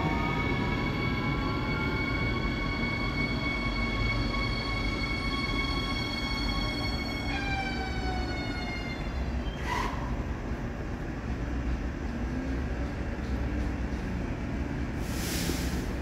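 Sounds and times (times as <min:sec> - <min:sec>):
train low rumble: 0:00.0 - 0:16.0
train hiss: 0:15.0 - 0:16.0.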